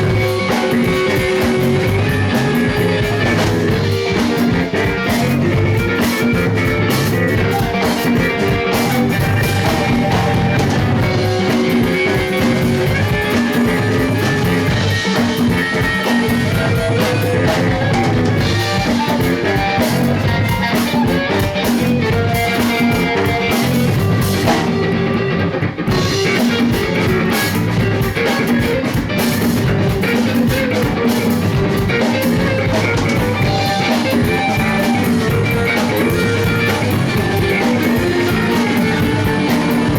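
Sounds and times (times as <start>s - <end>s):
drum kit: 0.0s - 39.9s
guitar: 0.0s - 39.9s.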